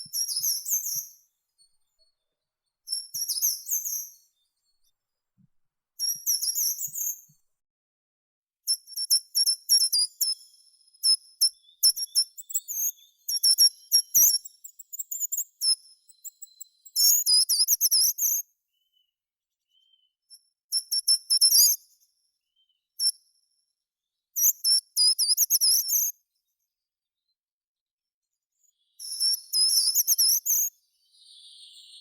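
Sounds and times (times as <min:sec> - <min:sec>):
songbird chirps and trills: 0:28.6 - 0:32.0.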